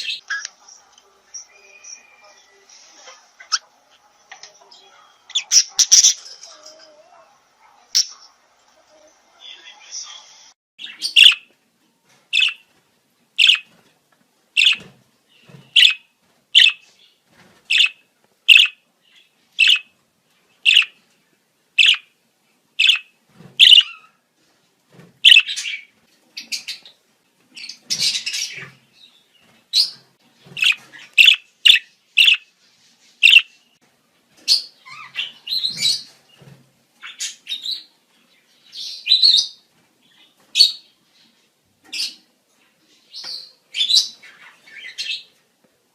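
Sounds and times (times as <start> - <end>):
budgerigars chirping and warbling: 5.3 - 6.4, 8.0 - 8.3, 10.8 - 11.5, 12.3 - 12.6, 13.4 - 13.7, 14.6 - 16.9, 17.7 - 19.9, 20.6 - 21.0, 21.8 - 22.1, 22.8 - 24.2, 25.2 - 27.0, 27.6 - 28.9, 29.7 - 32.5, 33.2 - 33.6, 34.4 - 36.2.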